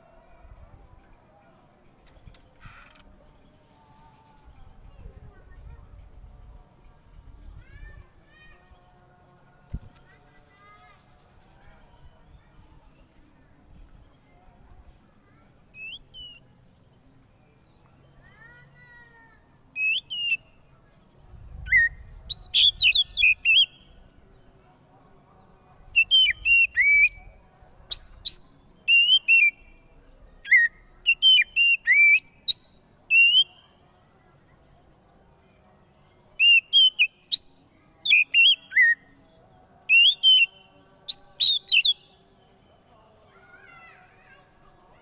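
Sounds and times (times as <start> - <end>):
songbird whistling: 15.7 - 16.4, 19.8 - 20.4, 21.7 - 23.9, 26.0 - 27.3, 27.9 - 29.6, 30.4 - 33.6, 36.4 - 39.0, 39.9 - 42.1.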